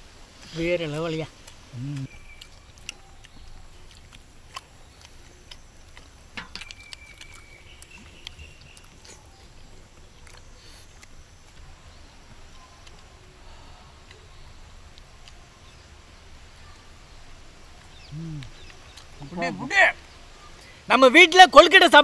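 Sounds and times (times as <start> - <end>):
chewing and mouth smacks: 1.4 - 11.7, 17.8 - 19.3.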